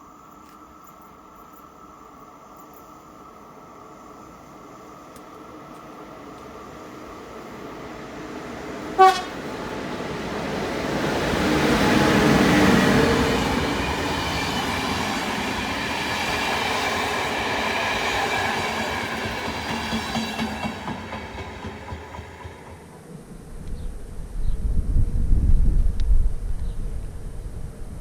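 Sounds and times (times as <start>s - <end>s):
train passing: 1.1s - 25.8s
wheels clicking over rail joints: 8.8s - 11.4s
train horn blast: 9.0s - 9.6s.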